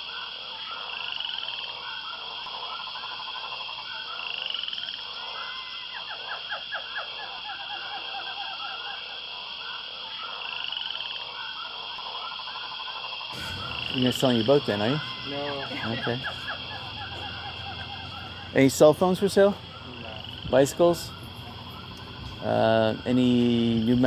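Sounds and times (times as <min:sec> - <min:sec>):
chorus of calling animals: 0:13.3 - 0:24.0
steady high buzz: 0:13.4 - 0:24.0.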